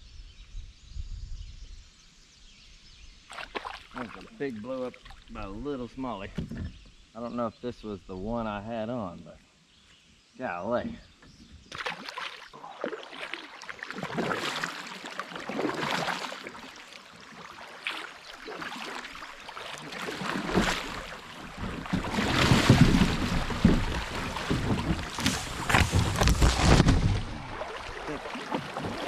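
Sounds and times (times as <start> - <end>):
water splashing and rushing: 11.8 - 29.0.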